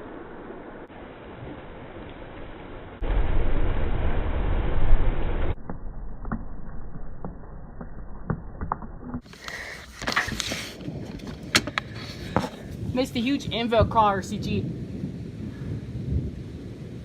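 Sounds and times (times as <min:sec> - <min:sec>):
thunder rumbling: 0:00.0 - 0:08.2, 0:10.7 - 0:17.0
sharp crackles and clicks: 0:00.0 - 0:13.0.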